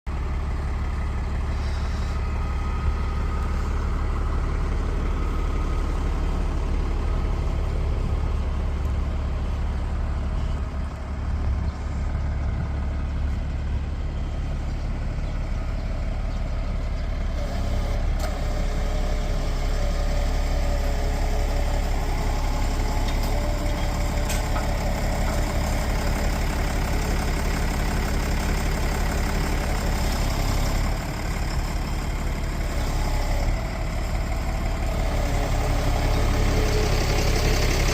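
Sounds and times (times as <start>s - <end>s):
tractor diesel engine running: 0.1s - 37.9s.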